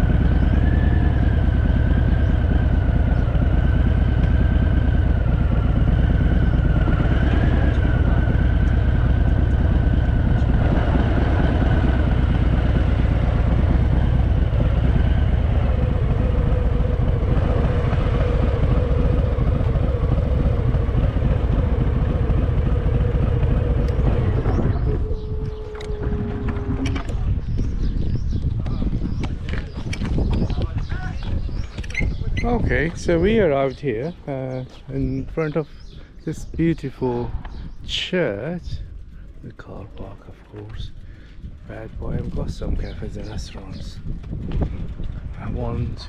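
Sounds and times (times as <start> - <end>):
motorcycle engine running: 0.0 - 46.0
wind rush: 24.0 - 33.5, 41.4 - 46.0.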